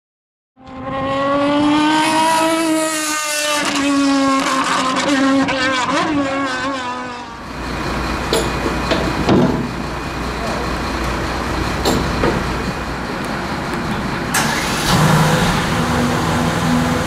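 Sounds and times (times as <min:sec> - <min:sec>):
racing car engine at high revs: 0:00.6 - 0:09.8, 0:13.2 - 0:17.0
street rumble: 0:00.6 - 0:17.0.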